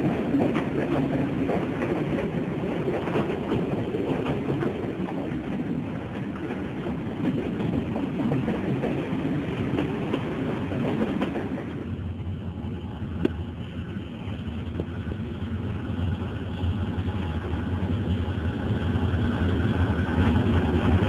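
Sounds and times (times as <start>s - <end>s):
train wheels clattering on rails: 0.0s - 21.0s
diesel locomotive droning: 8.7s - 21.0s.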